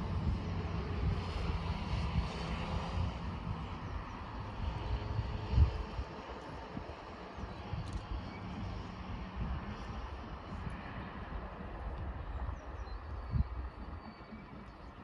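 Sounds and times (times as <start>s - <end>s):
distant train rumble: 0.0s - 15.0s
wind buffeting microphone: 0.0s - 15.0s.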